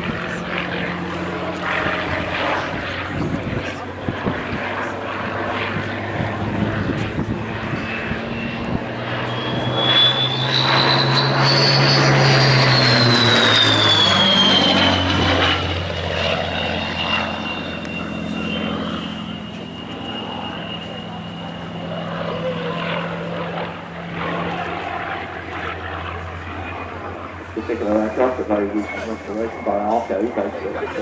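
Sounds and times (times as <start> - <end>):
propeller plane flypast: 0.0 - 31.0
high-pitched whistle: 9.3 - 15.1.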